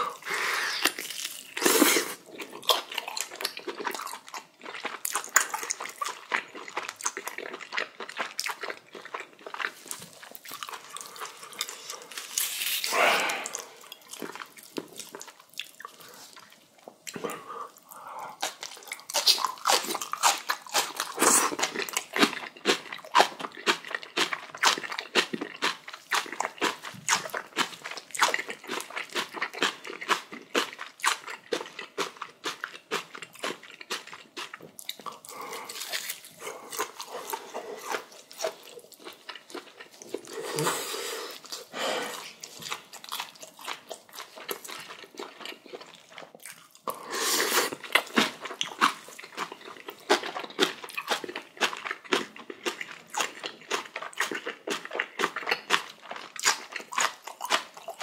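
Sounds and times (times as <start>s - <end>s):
chewing with wet crunches: 0.0s - 40.7s, 41.3s - 58.0s
breathy rush: 12.9s - 13.9s.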